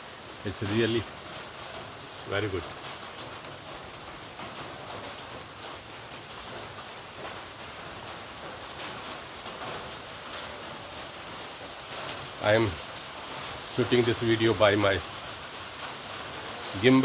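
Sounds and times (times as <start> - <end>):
light rain hiss: 0.0 - 17.0
raindrops pattering on surfaces: 0.0 - 17.0.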